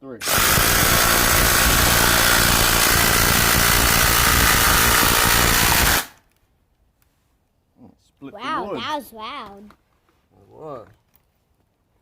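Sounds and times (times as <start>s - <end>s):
impact drivers hammering screws into wood: 0.2s - 6.2s.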